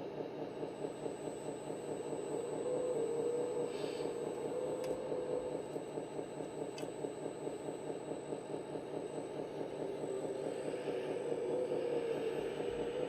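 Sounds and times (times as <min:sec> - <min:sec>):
model tractor whine and chugging: 0:00.4 - 0:13.0.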